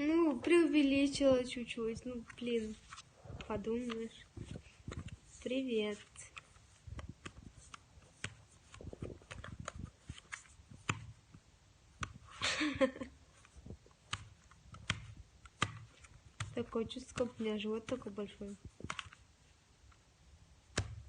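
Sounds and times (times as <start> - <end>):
small clicks and taps: 13.4 - 19.2.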